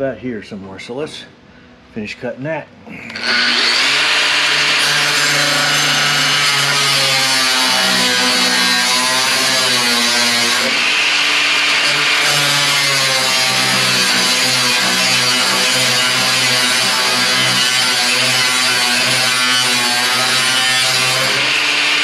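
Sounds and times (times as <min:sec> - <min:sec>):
power saw cutting metal: 0:03.1 - 0:22.0.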